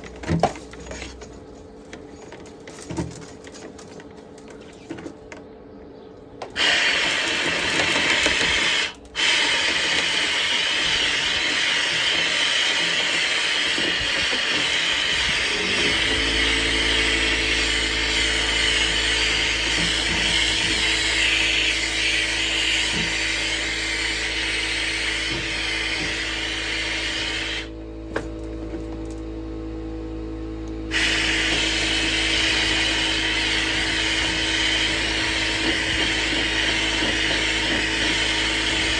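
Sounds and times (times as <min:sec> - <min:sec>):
power drill spinning brush in duct: 0:06.6 - 0:28.3, 0:30.9 - 0:38.9
motor humming: 0:06.6 - 0:38.9.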